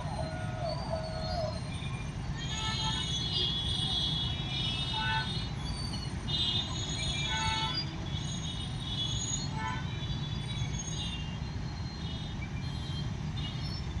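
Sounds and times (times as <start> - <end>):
high-pitched wheel squeals: 0.0 - 13.9.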